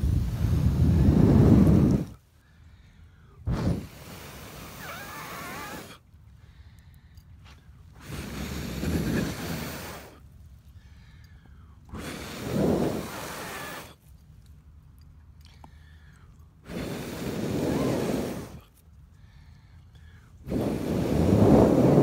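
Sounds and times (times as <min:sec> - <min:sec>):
man blowing onto embers: 0:00.0 - 0:02.2, 0:03.1 - 0:06.1, 0:07.6 - 0:10.9, 0:11.6 - 0:14.0, 0:16.6 - 0:19.3, 0:20.0 - 0:22.0.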